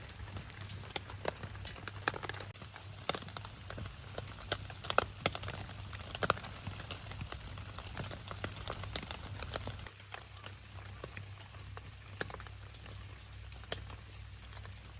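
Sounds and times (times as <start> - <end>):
rain pattering on a tarp: 0.0 - 14.9.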